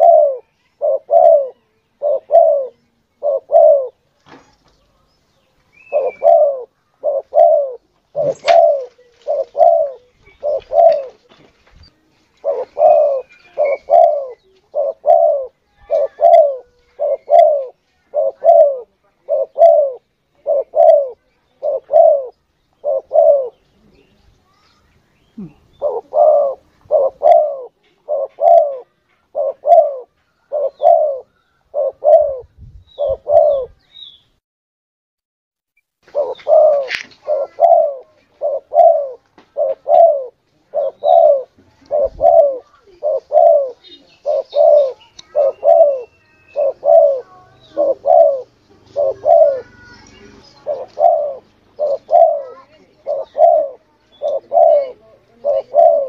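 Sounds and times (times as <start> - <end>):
dove cooing: 0.0 - 4.0, 5.8 - 11.4, 12.3 - 24.0, 25.4 - 33.8, 36.0 - 56.0
faint high bird chirps: 0.0 - 11.1, 11.8 - 18.6, 20.8 - 34.4, 42.2 - 55.0.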